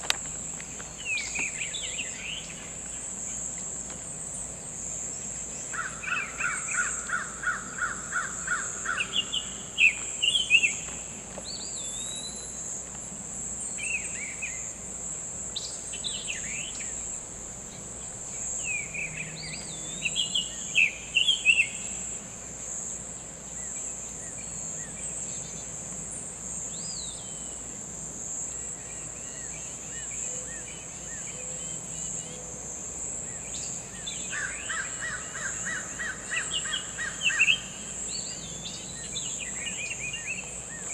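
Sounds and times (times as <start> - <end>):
birds calling and singing: 0.0 - 14.8, 15.5 - 22.2, 33.2 - 40.9
insect drone: 0.0 - 40.9.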